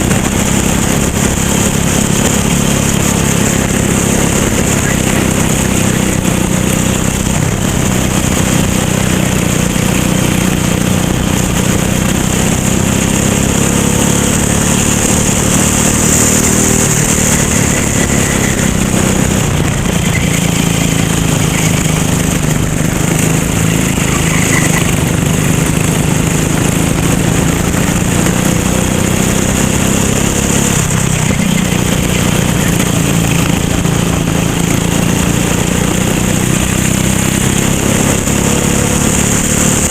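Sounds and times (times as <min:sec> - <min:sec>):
racing kart engine running: 0:00.0 - 0:39.9.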